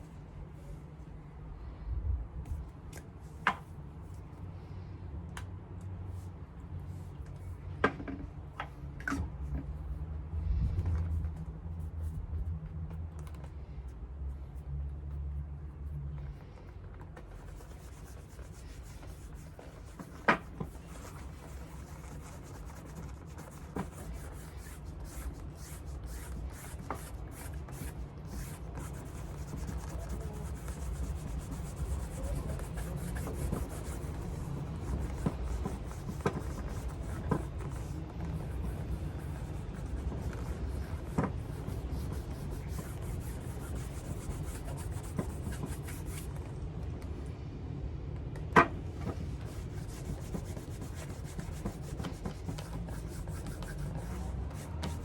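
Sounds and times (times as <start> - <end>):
rubbing strokes on leather shoe: 17.4 - 46.3, 49.3 - 55.0.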